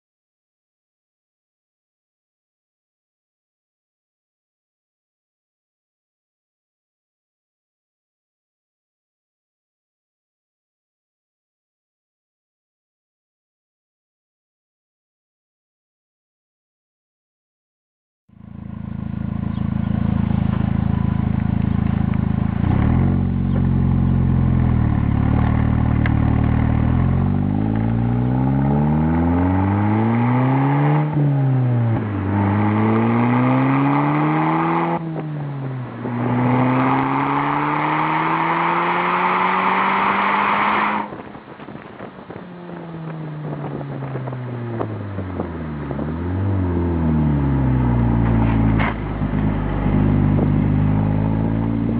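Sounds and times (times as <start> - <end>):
car engine idling and revving: 18.3 - 51.9.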